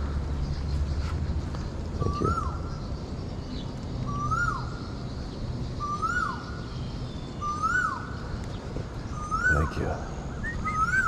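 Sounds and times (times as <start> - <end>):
steady low rumble: 0.0 - 5.8
bird calling: 0.0 - 11.0.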